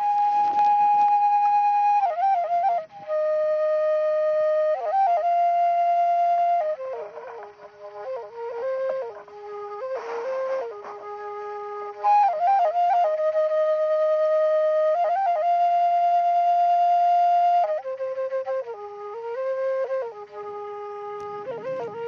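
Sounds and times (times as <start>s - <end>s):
slow flute melody: 0.0s - 22.0s.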